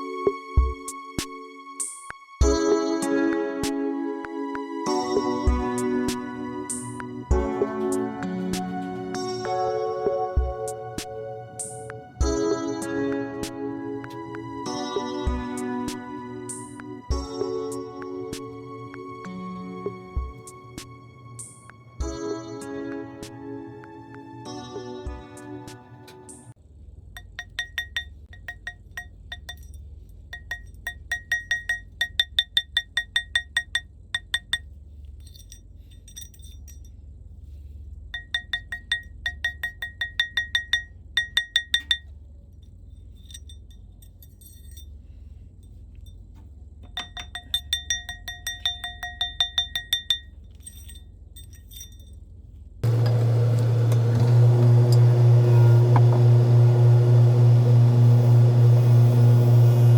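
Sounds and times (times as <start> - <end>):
loud steady machine hum: 52.8 - 59.9.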